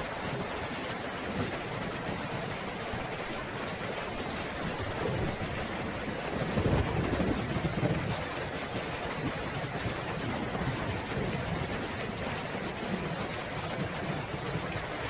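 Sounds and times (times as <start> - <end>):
steady rain: 0.0 - 15.0
thunder rumbling: 4.4 - 8.4.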